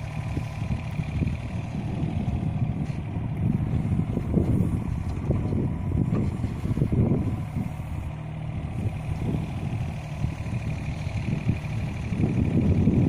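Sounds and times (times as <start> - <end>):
excavator diesel engine working: 0.0 - 13.0.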